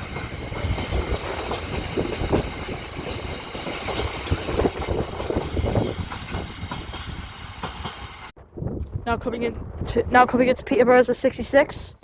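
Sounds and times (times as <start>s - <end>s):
wheel clanks on rail joints: 0.0s - 8.2s
freight train wagons rumbling: 0.0s - 8.4s.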